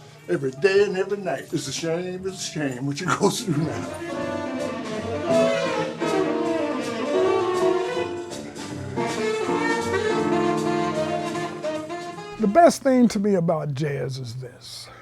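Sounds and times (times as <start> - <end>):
jazz band playing: 3.7 - 13.6.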